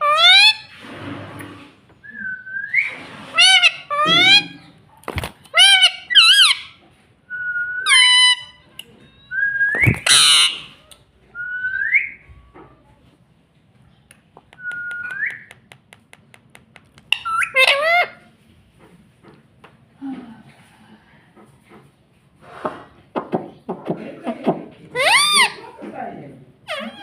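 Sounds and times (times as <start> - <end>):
parrot screeching calls: 0.0 - 0.7, 3.3 - 4.6, 5.5 - 6.8, 7.8 - 8.6, 9.3 - 10.8, 17.1 - 18.3, 25.0 - 25.6, 26.7 - 27.0.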